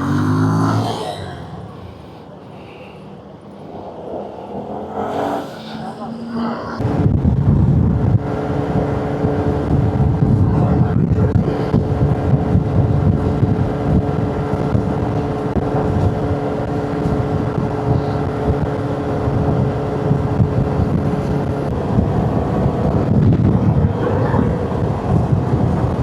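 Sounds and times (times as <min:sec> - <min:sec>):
motorcycle engine cruising: 0:00.0 - 0:01.5
wind rushing over microphone: 0:00.0 - 0:26.0.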